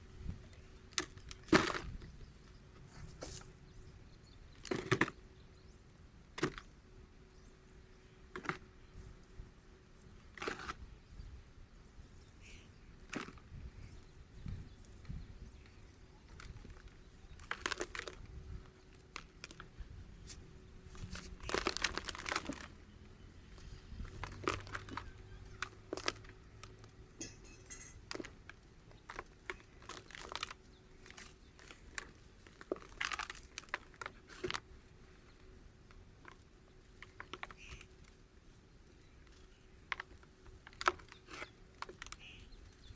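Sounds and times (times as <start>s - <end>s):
dry clumps crumbling: 14.8s - 22.9s, 23.5s - 34.7s.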